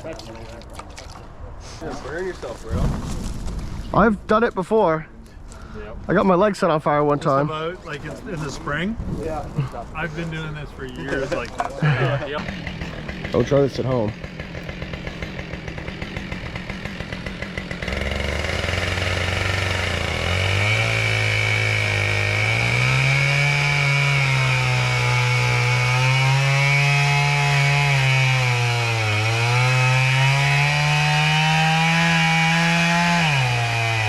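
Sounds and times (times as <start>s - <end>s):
chainsaw cutting tree trunk: 11.8s - 34.0s.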